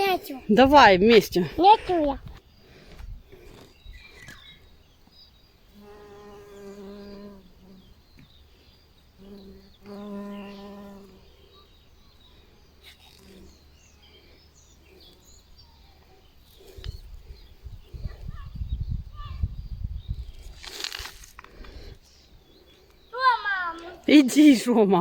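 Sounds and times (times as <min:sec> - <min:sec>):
flying insect buzzing: 0:05.6 - 0:11.8, 0:12.8 - 0:18.5.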